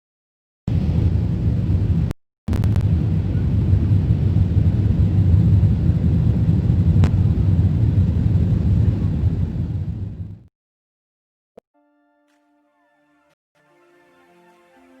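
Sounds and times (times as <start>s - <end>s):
airplane cabin low rumble: 0.7s - 10.5s.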